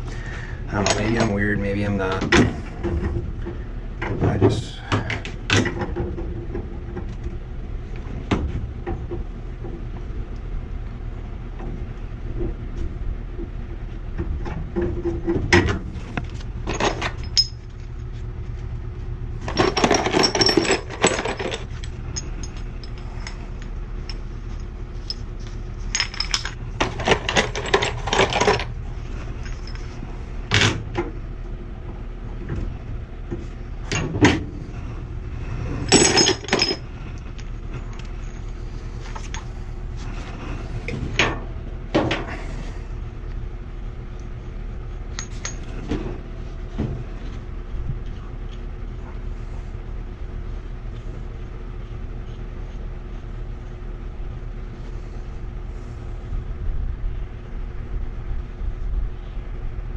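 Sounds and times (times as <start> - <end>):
steady low hum: 0.0 - 59.9
metal tools clinking and scraping: 0.7 - 2.2, 16.7 - 17.8, 19.4 - 28.7, 29.4 - 30.0, 35.7 - 39.5, 45.2 - 45.9.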